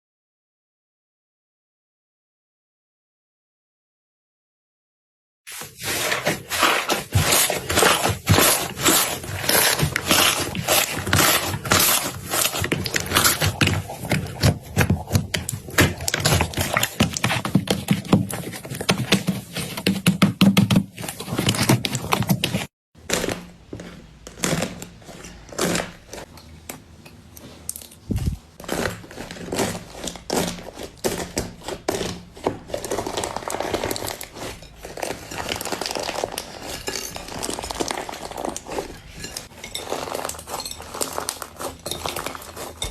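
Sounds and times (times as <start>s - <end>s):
slime crackling and popping: 28.1s - 42.9s.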